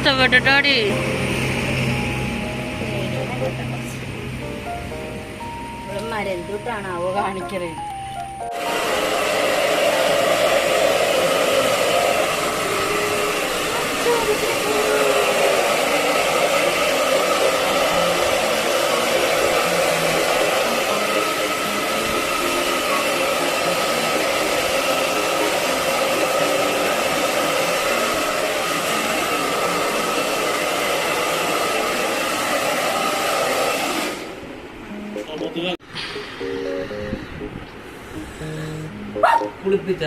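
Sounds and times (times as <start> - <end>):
hair dryer blowing: 0.0 - 4.4, 8.5 - 34.6.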